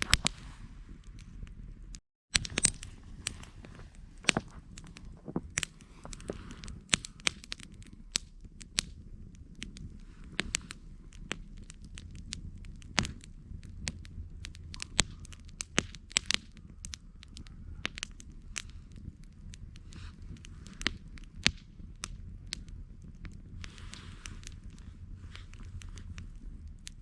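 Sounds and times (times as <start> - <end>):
campfire crackling and popping: 0.0 - 27.0
low steady rumble: 0.0 - 27.0.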